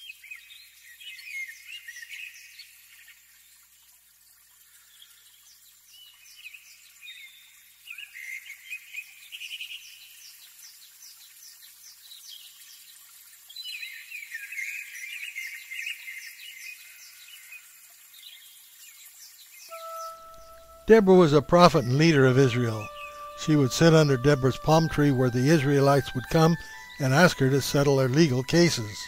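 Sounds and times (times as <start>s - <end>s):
birds warbling: 19.7s - 29.0s.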